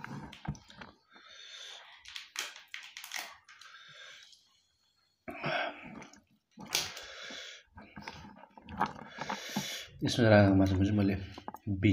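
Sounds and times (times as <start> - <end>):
man chewing food: 0.0 - 10.0, 10.6 - 11.7
hissing breaths: 6.8 - 10.0.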